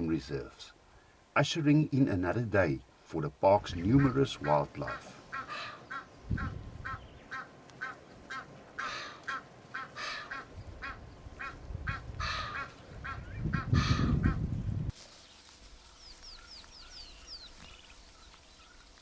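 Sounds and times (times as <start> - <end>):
birds calling: 2.2 - 19.0
harsh bird calls: 3.6 - 14.4, 15.9 - 19.0.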